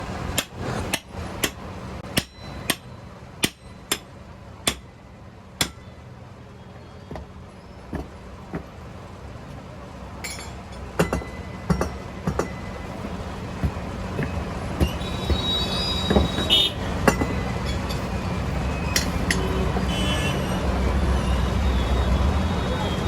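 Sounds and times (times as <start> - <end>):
metal knocking on metal: 10.2 - 18.1.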